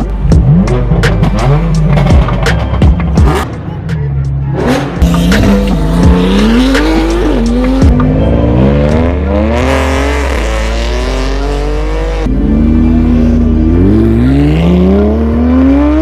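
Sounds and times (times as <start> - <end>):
car engine accelerating hard: 0.0 - 3.8, 4.4 - 16.0
music with steady bass: 0.0 - 16.0.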